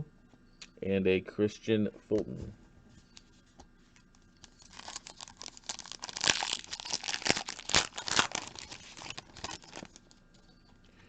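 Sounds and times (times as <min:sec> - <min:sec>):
foil wrapper crinkling and tearing: 0:04.4 - 0:10.0.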